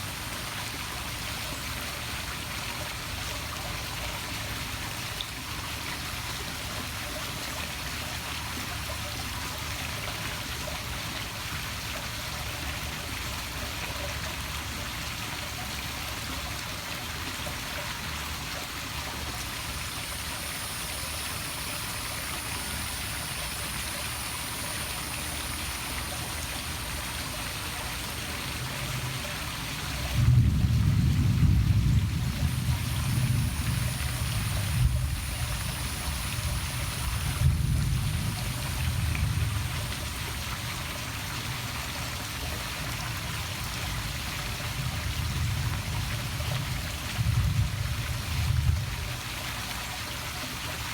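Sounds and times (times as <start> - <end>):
waterfall splashing into pool: 0.0 - 50.9
faint high whine: 19.3 - 30.4, 32.2 - 41.0.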